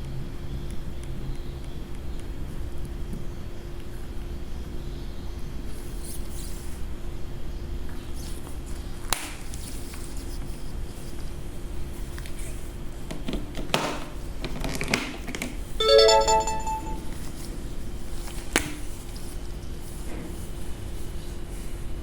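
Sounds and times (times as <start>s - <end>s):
bright ringtone chime: 15.8s - 17.1s.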